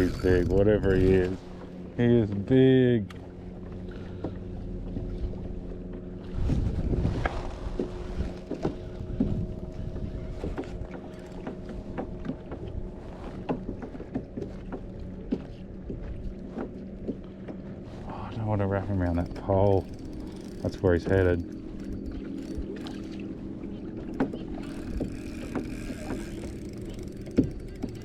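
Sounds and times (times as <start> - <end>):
low rumble of water or wind: 0.0 - 28.0
water against kayak hull: 0.0 - 28.0
light clicks and knocks: 7.8 - 17.7, 18.8 - 28.0.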